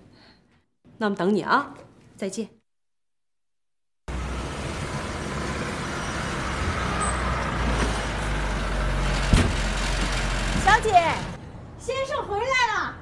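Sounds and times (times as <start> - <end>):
sharp thump: 9.3 - 9.7.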